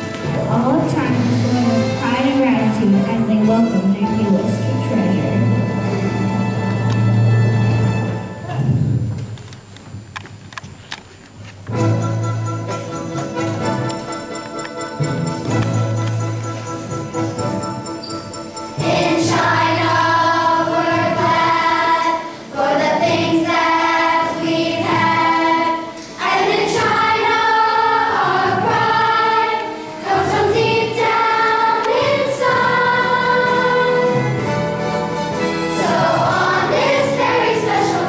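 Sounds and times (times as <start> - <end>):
instrumental accompaniment: 0.0 - 9.4, 11.6 - 38.0
choir singing: 18.8 - 38.0.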